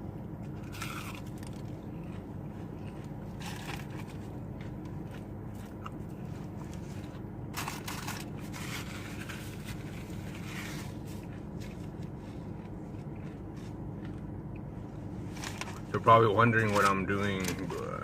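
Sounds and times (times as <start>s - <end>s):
steady low hum: 0.0s - 18.0s
chewing and crunching food: 0.1s - 18.0s
paper wrapper crinkling: 16.6s - 18.0s.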